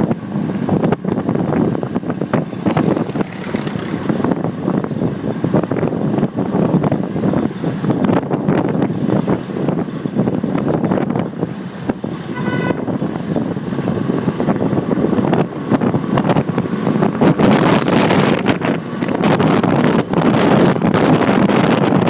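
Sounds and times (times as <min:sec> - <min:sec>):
motorcycle engine and road noise: 0:00.0 - 0:22.0
wind buffeting microphone: 0:00.0 - 0:22.0
vehicle horn toot: 0:12.3 - 0:13.0.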